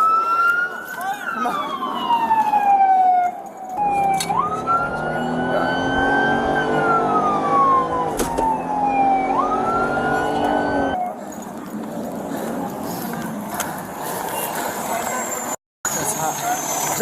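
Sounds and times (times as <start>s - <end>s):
emergency siren wailing: 0.0s - 11.3s
heavy vehicle engine hum: 3.8s - 17.0s.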